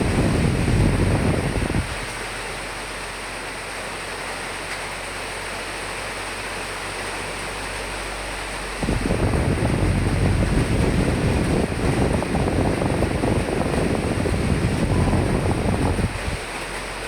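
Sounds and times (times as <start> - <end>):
wind gust buffeting: 0.0 - 2.2, 8.8 - 16.6
rain hiss: 0.0 - 17.0.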